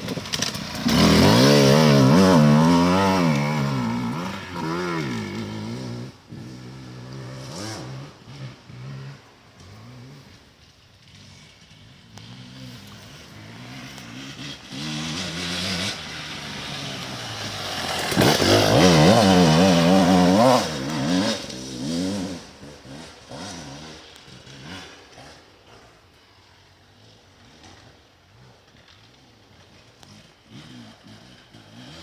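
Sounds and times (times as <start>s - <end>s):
motorcycle engine passing: 0.0s - 32.0s.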